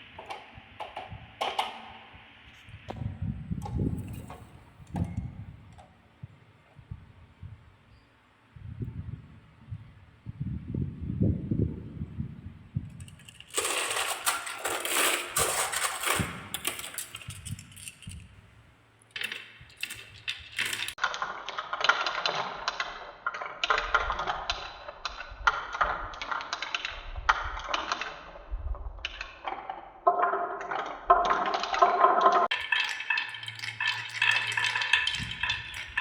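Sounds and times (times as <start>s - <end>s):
marbles rolling on wooden run: 13.0s - 18.3s, 19.1s - 28.2s, 29.0s - 36.0s.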